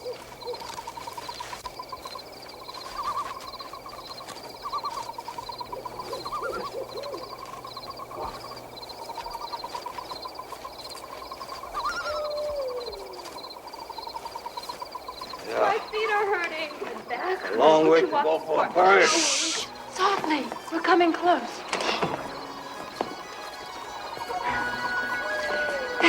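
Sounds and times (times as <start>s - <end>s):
high chirping of small animals: 0.0s - 26.0s
lower animal calls: 0.0s - 26.0s
falling animal call: 5.8s - 7.4s, 11.4s - 16.0s, 18.9s - 19.8s, 24.2s - 26.0s.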